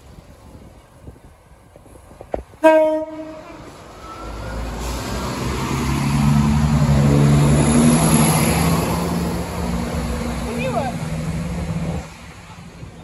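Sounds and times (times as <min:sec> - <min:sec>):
diesel train approaching: 0:00.0 - 0:13.0
train horn blast: 0:02.6 - 0:03.7.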